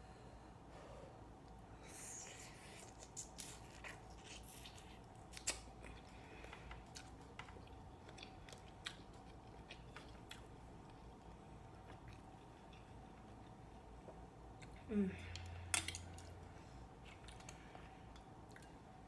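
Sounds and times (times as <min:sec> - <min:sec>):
wet chewing: 0:02.6 - 0:14.8.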